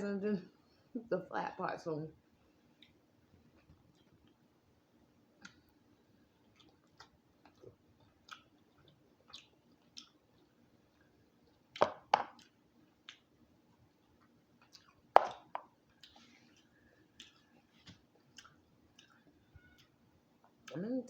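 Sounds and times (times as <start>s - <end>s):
close chewing: 5.4s - 20.8s
wet mouth clicks and lip smacks: 6.5s - 10.2s, 14.6s - 20.8s.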